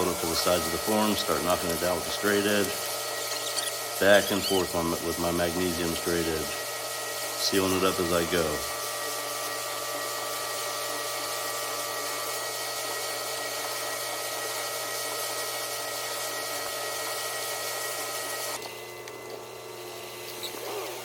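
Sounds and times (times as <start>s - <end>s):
machine drone with whining tones: 3.2s - 4.7s.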